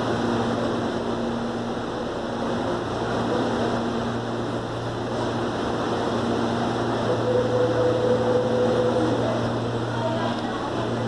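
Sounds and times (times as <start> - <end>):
train hum and rushing: 0.0 - 11.0
steady high tone: 6.8 - 11.0.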